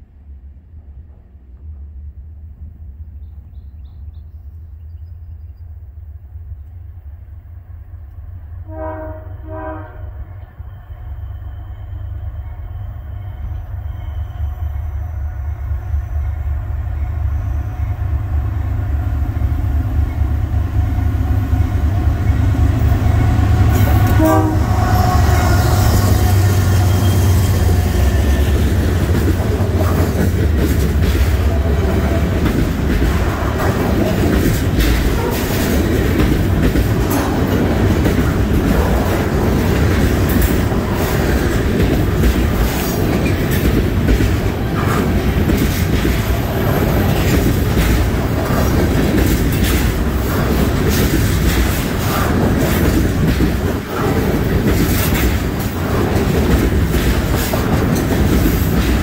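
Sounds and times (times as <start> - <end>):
train horn short blasts: 8.6 - 10.4, 23.7 - 28.5, 35.1 - 35.6
locomotive engine rumble: 9.6 - 59.0
steel wheels rattling on rails: 19.5 - 59.0.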